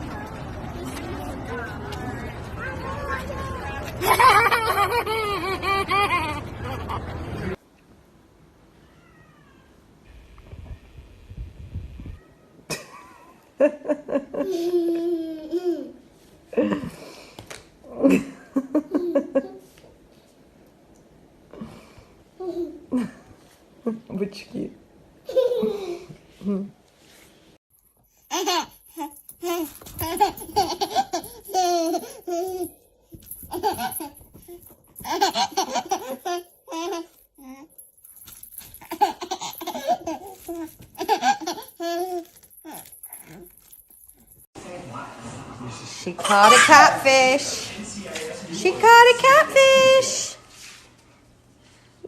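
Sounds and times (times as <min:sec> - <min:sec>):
cat meowing: 0:08.8 - 0:09.8
baby giggling: 0:28.3 - 0:32.8, 0:33.4 - 0:37.7, 0:38.7 - 0:43.5.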